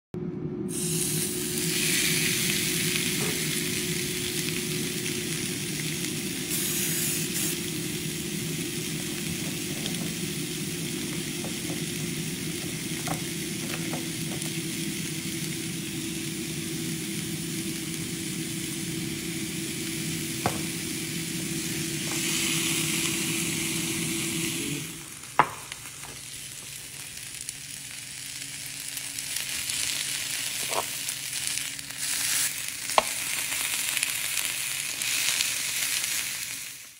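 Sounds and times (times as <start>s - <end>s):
chicken sizzling on waffle iron: 0.7s - 36.9s
low hum: 7.5s - 30.2s.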